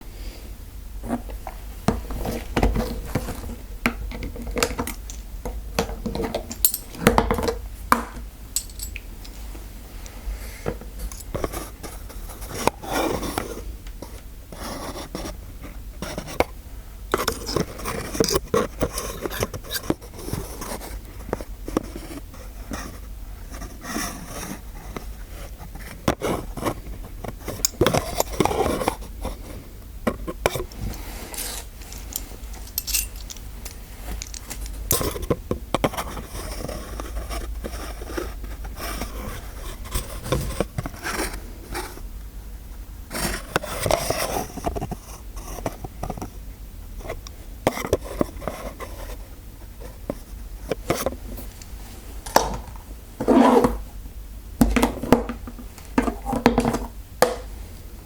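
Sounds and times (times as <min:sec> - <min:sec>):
metal instruments clinking and scraping: 0:06.1 - 0:07.0, 0:08.6 - 0:09.0, 0:30.7 - 0:35.1.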